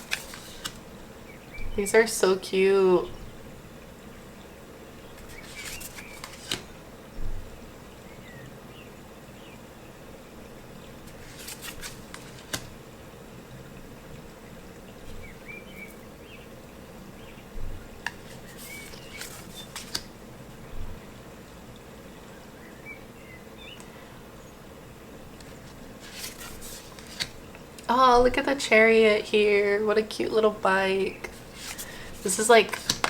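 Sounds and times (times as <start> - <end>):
cards clicking and snapping: 0.0 - 0.9, 5.2 - 6.7, 11.1 - 12.7, 18.0 - 20.1, 26.0 - 27.4, 31.3 - 33.0.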